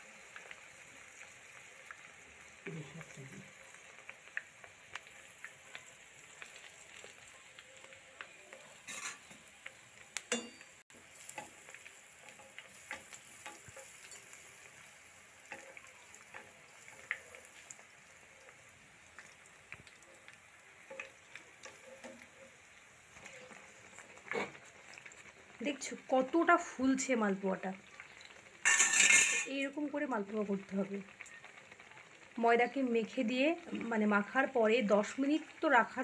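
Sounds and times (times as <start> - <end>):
batter sizzling in hot oil: 0.0 - 36.0
oil crackling and popping: 0.0 - 36.0
metal spatula clinking on pan: 8.8 - 9.4, 10.3 - 11.5, 28.6 - 29.5.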